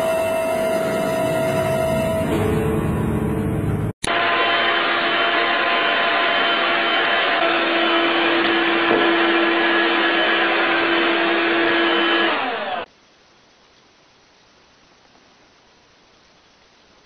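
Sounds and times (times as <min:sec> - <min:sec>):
vacuum cleaner motor running: 0:00.0 - 0:02.5, 0:04.1 - 0:12.9.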